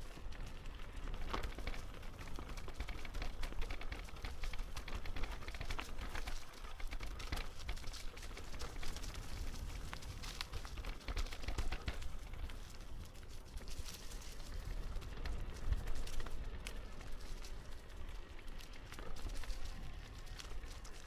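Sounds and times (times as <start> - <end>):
footsteps crunching on forest path: 5.4 - 21.0.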